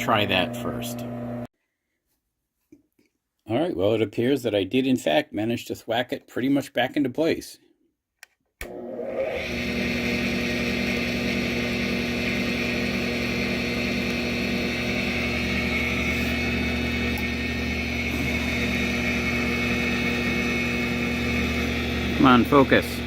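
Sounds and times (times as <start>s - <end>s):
drill press motor humming and whining: 0.0s - 1.5s, 8.7s - 23.0s.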